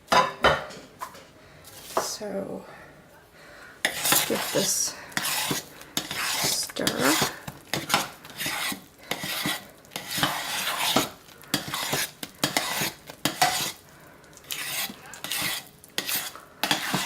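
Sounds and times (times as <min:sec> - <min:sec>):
utensil scraping and knocking pot: 0:03.8 - 0:13.8, 0:14.4 - 0:17.0.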